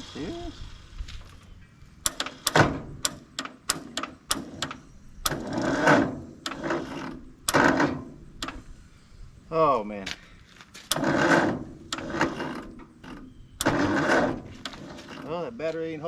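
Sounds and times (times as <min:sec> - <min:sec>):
tractor starter clicks and knocks: 0:02.0 - 0:08.7, 0:10.8 - 0:16.0
weak engine cranking: 0:02.0 - 0:08.7, 0:10.8 - 0:15.6.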